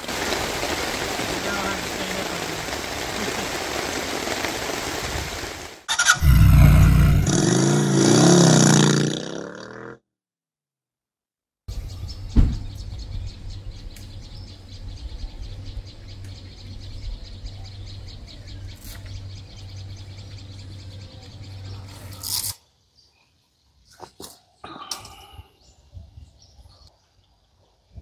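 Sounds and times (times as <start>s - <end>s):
birds chirping: 11.7s - 27.9s
thump: 12.3s - 12.7s.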